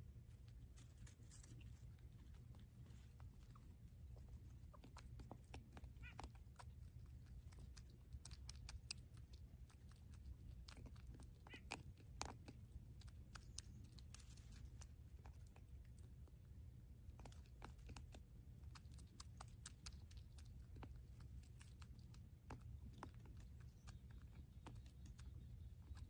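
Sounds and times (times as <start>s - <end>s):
baby porcupine squeaking: 5.6s - 6.4s, 11.4s - 11.8s.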